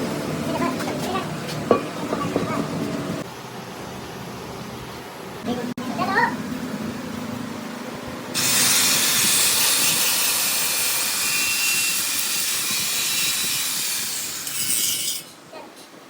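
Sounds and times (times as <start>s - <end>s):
loud steady hiss: 8.3s - 15.2s.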